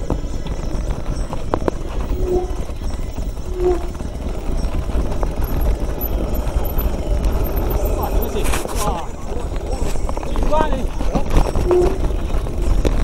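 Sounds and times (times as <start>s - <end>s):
mountain bike clattering: 0.0s - 13.0s
wind on microphone: 0.0s - 13.0s
short squeaks: 11.4s - 12.8s.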